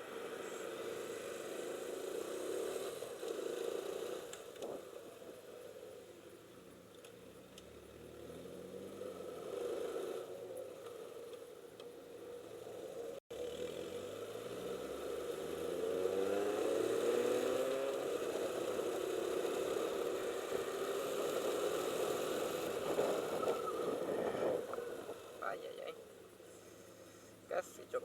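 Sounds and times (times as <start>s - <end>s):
motorcycle engine accelerating: 0.0s - 26.2s
wind noise: 22.7s - 25.4s.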